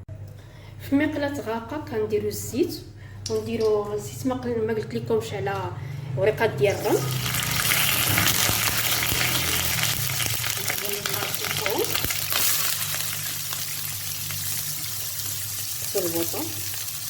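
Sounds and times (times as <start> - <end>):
oil sizzling in a frying pan: 6.7 - 17.0.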